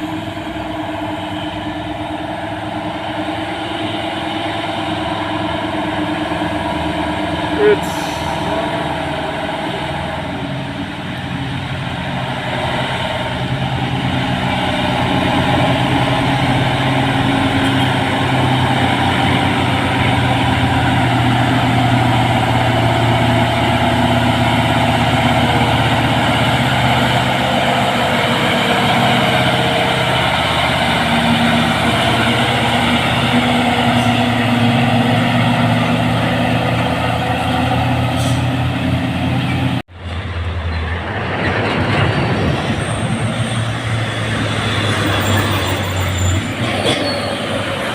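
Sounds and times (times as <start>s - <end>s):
truck diesel engine running: 0.0s - 40.6s.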